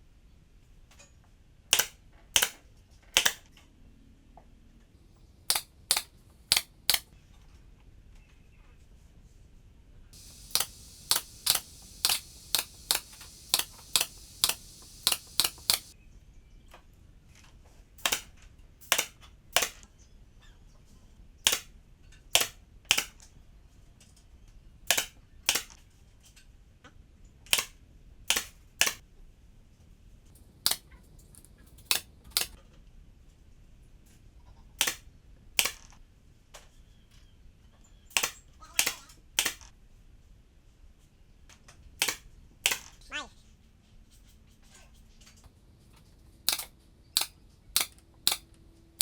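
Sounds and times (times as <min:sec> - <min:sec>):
sharp clicks: 0:05.5 - 0:07.1, 0:10.2 - 0:15.9, 0:30.4 - 0:32.6, 0:38.2 - 0:39.7, 0:46.5 - 0:48.5
high hiss: 0:10.2 - 0:16.0.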